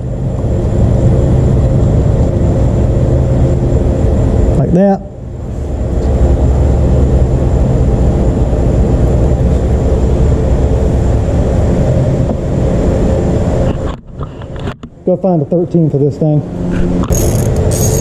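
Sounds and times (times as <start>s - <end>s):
engine humming: 16.4s - 18.0s.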